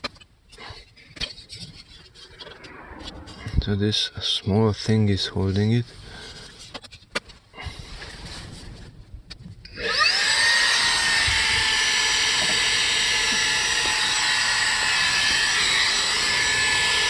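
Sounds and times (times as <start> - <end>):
vacuum cleaner whining: 9.8 - 17.0.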